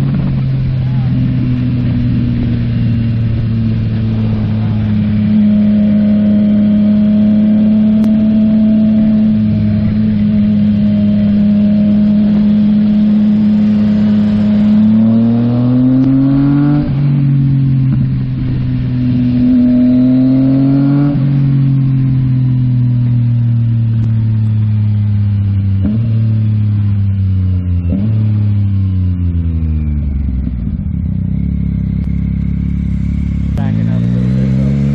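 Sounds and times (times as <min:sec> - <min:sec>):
wind rush: 0:00.0 - 0:06.9
motorcycle engine revving: 0:00.0 - 0:34.9.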